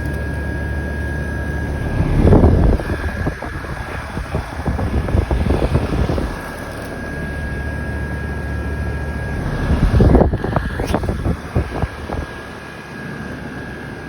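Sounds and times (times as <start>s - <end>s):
thin high steady tone: 0.0s - 12.0s
wind gusts on microphone: 1.4s - 8.0s, 9.3s - 12.6s.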